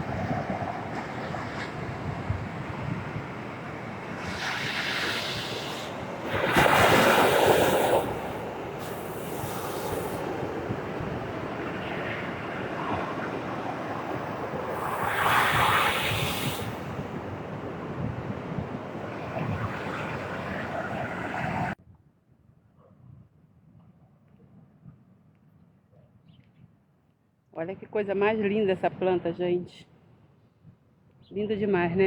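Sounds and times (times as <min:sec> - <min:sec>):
sea waves washing on shore: 0:00.0 - 0:21.8
wind on microphone: 0:00.0 - 0:21.8.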